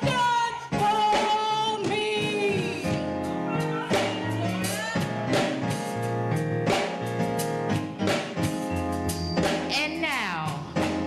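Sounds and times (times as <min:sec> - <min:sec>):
people singing: 0:00.0 - 0:06.0
gospel band music: 0:00.0 - 0:11.0.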